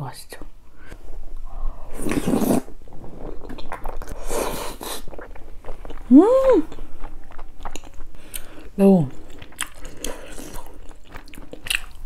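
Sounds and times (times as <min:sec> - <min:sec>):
closed-mouth hum: 0:00.7 - 0:07.4
chewing with wet squishing: 0:03.2 - 0:06.1, 0:06.7 - 0:12.0.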